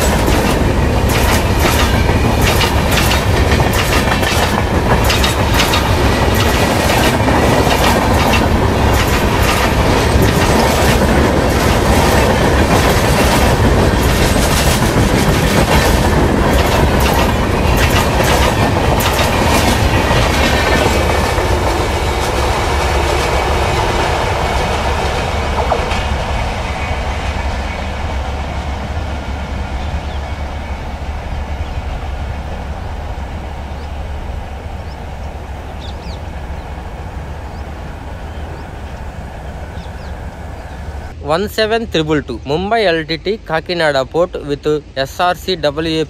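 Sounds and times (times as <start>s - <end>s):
wheels clicking over rail joints: 0.0s - 23.4s
train passing at speed: 0.0s - 46.0s.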